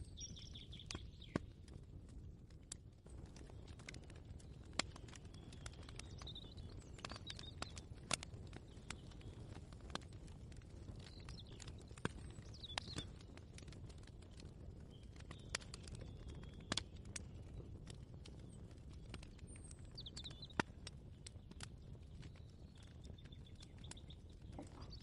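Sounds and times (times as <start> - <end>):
bird chirping: 0.0 - 1.4, 22.4 - 25.0.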